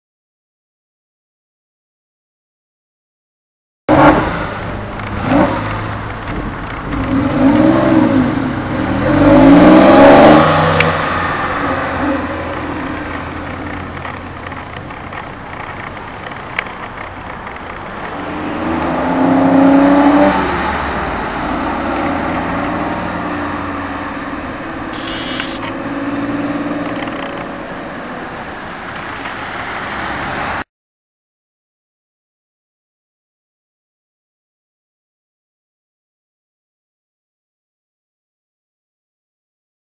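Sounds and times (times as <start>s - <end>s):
car engine revving: 3.9s - 15.4s, 17.9s - 28.5s.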